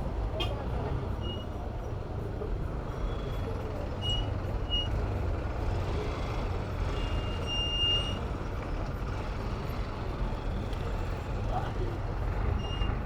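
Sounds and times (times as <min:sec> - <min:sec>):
traffic rumble and road noise: 0:00.0 - 0:13.0.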